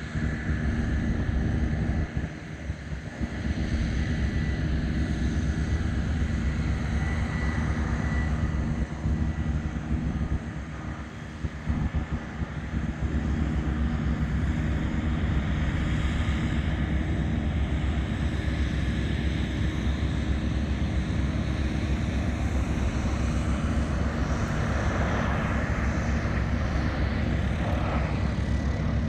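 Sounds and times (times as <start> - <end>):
jet engines roaring: 0.0 - 29.0.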